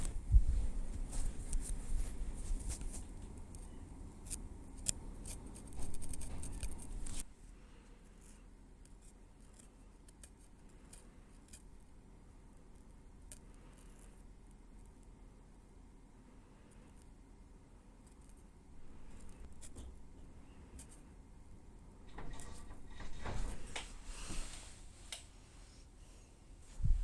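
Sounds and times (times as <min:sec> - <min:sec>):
soft rustle: 0:00.0 - 0:11.9, 0:22.4 - 0:27.0.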